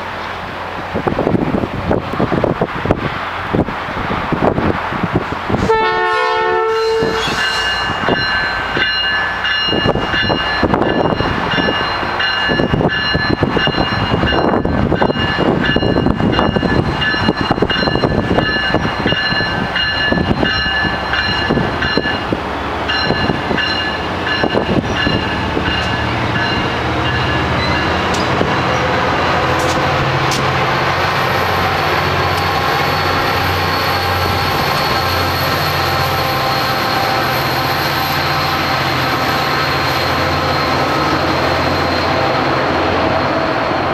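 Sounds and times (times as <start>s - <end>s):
train horn blast: 5.6s - 7.8s
steady high squeal: 6.7s - 14.8s, 31.0s - 43.9s.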